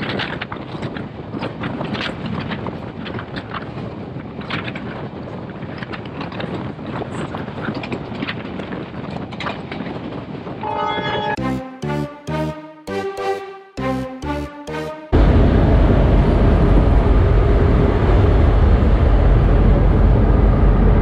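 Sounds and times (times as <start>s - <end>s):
knocks and clatters of running gear: 0.0s - 10.6s
wind on microphone: 0.0s - 11.4s
music: 11.2s - 15.2s
train rumble: 15.2s - 21.0s.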